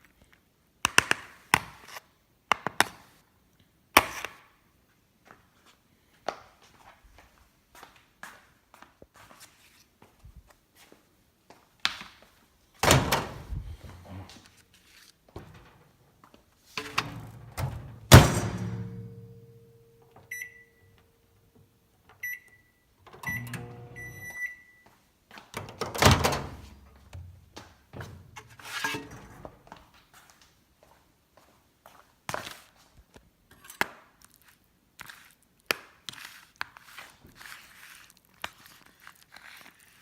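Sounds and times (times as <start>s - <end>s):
microwave door thunking shut: 17.6s - 19.0s
keypad beeps: 20.2s - 21.0s, 22.2s - 24.8s.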